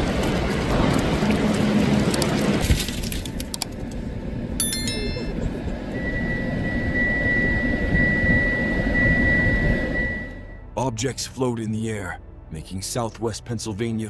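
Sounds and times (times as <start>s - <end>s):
high electronic tones: 4.6s - 6.4s
steady high-pitched tone: 4.6s - 10.7s.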